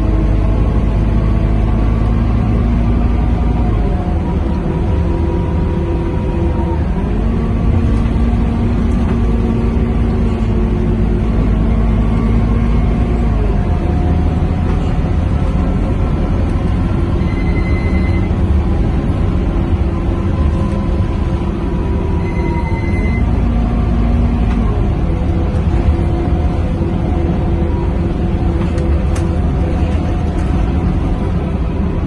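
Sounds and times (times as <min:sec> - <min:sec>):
bus engine and road rumble: 0:00.0 - 0:32.0
whining tones: 0:04.2 - 0:31.1.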